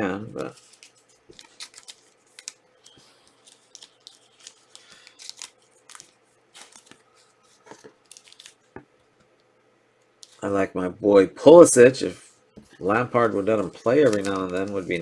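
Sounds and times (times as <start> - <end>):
trading cards flipped by hand: 0.4 - 8.9, 12.6 - 15.0.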